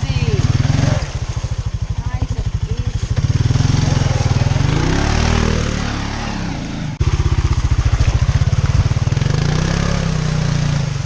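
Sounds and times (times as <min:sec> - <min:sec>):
quad bike engine revving: 0:00.0 - 0:11.0.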